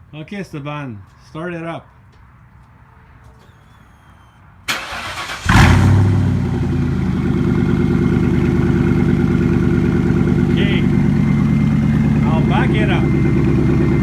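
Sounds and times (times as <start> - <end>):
car engine revving and idling: 5.0 - 14.0.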